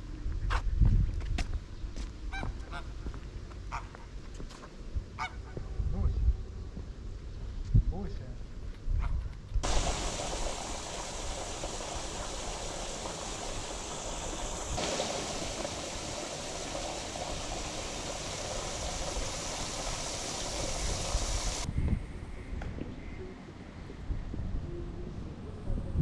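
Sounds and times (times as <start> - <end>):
running water rushing: 9.6 - 21.7.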